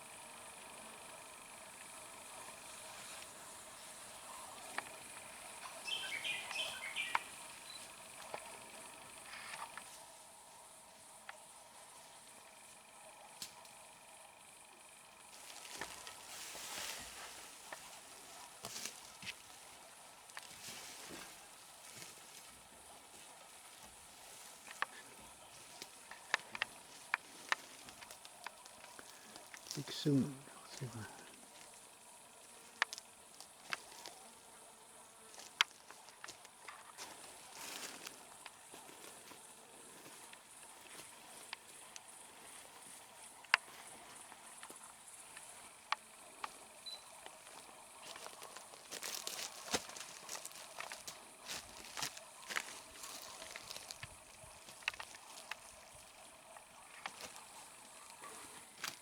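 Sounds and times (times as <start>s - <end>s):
faint high-pitched hiss: 15.2s - 59.0s.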